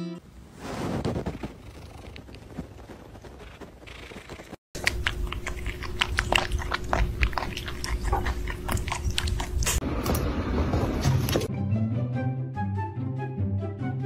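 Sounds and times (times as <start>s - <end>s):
animal suckling wet smacking: 4.8s - 9.8s.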